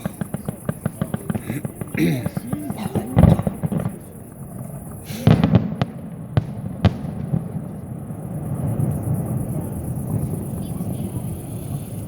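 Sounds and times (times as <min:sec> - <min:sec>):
firework burst: 0:00.0 - 0:12.0
firework cracks: 0:00.0 - 0:12.0.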